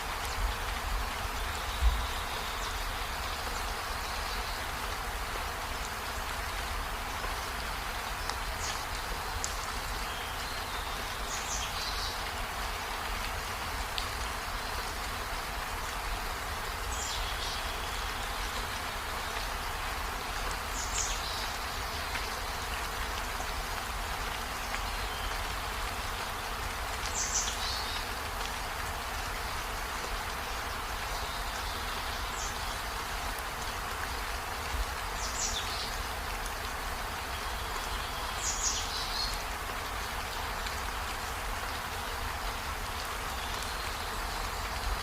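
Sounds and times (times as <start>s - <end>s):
steady rain hiss: 0.0s - 45.0s.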